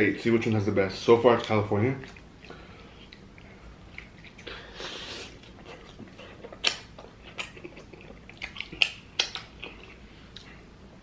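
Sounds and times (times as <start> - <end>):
chewing with wet mouth smacks: 2.0 - 4.6, 5.3 - 10.6.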